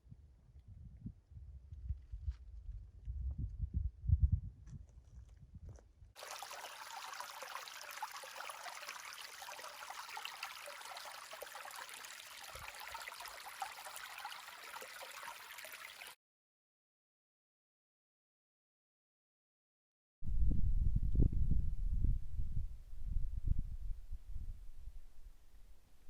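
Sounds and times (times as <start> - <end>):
running water hissing: 6.2 - 16.2.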